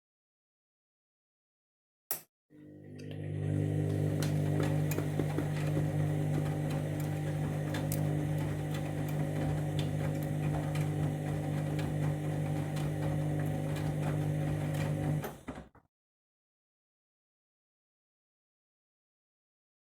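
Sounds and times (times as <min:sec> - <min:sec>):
washing machine motor hum: 0:02.6 - 0:15.7.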